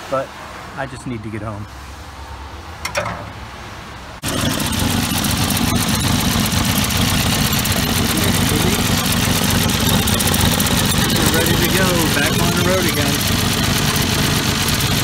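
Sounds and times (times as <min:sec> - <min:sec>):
car engine idling: 0:04.2 - 0:15.0.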